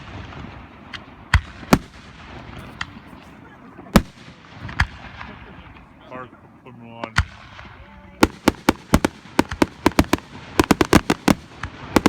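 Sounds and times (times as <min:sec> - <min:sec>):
fireworks bangs: 0:00.0 - 0:12.0
faint firework pops: 0:04.0 - 0:05.9.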